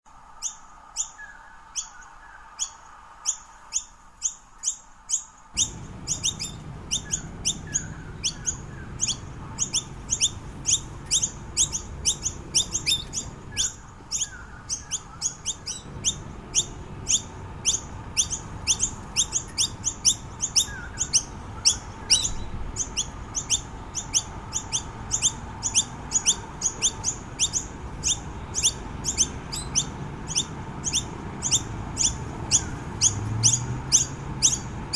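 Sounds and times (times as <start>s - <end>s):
bird sharp high chirps: 0.4s - 34.9s
low background rumble: 5.6s - 34.9s.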